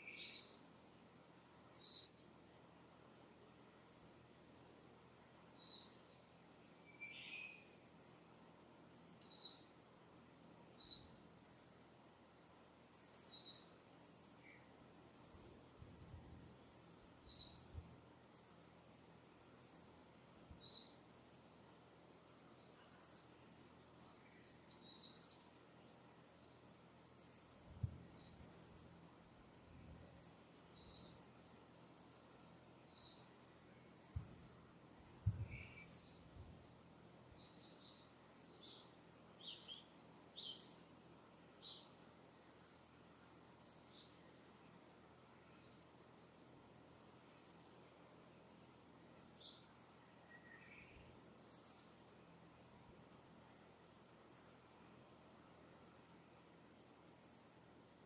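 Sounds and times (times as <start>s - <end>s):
distant bird chirps: 26.3s - 44.2s
soft low thumps: 35.2s - 35.6s.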